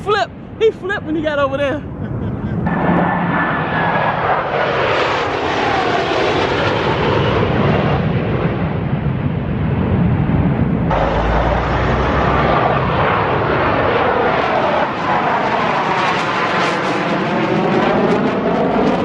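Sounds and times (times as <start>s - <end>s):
airplane engine roar: 0.0s - 19.0s.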